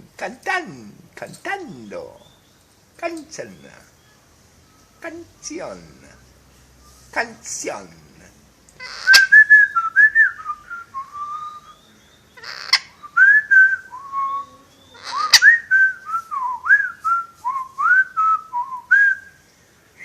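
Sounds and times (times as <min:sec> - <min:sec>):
parrot whistling a tune: 0:08.8 - 0:11.8, 0:12.4 - 0:19.2.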